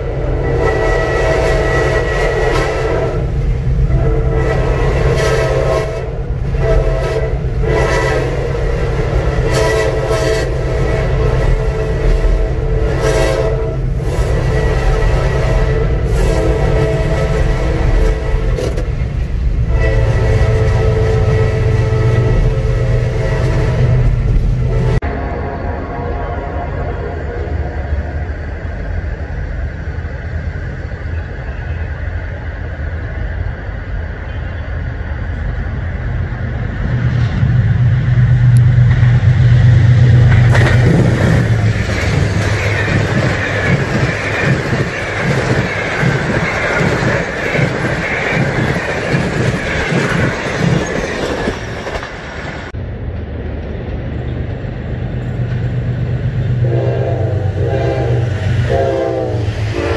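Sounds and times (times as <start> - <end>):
locomotive engine drone: 0.0 - 59.9
wheel clatter over rails: 40.1 - 52.7.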